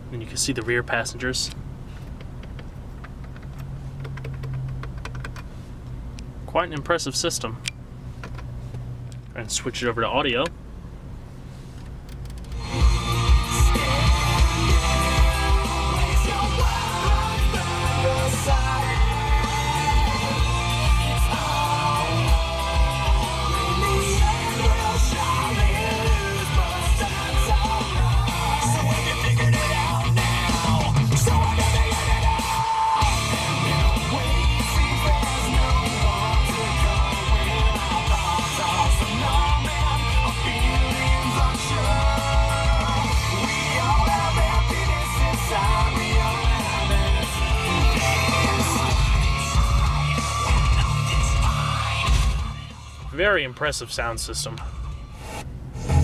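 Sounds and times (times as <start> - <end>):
rock music on car stereo: 12.1 - 56.0.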